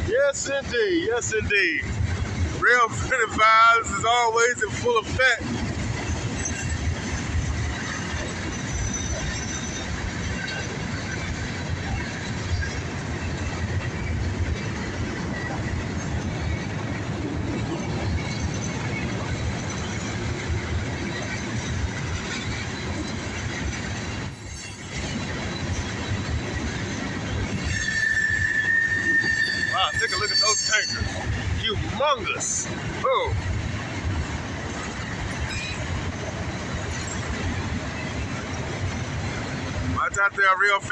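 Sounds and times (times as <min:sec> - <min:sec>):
steel wheels rumbling on rail: 0:00.0 - 0:40.9
high wheel squeal: 0:07.8 - 0:10.7, 0:24.2 - 0:26.4, 0:27.3 - 0:32.0, 0:35.4 - 0:36.0.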